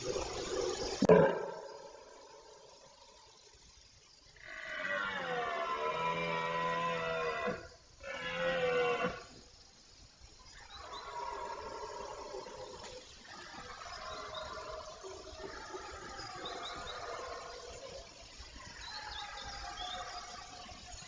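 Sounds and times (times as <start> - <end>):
deer stag roaring: 4.4 - 9.3.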